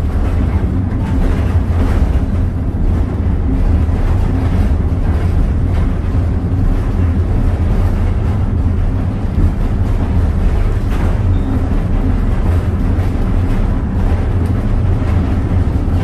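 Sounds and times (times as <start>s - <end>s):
train ride rumble: 0.0s - 16.0s.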